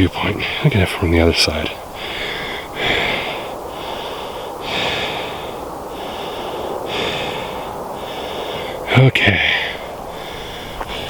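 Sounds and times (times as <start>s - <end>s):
person breathing close to microphone: 1.8s - 11.0s.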